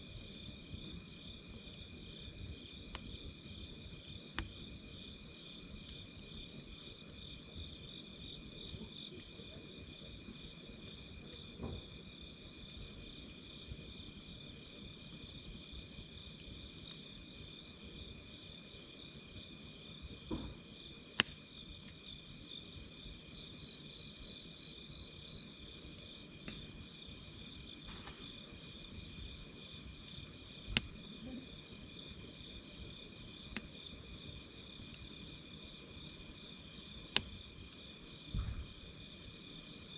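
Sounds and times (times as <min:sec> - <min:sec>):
campfire crackling: 0:00.0 - 0:39.9
crickets trilling: 0:00.0 - 0:39.9
sharp wood pops: 0:20.3 - 0:20.6, 0:21.2 - 0:21.4.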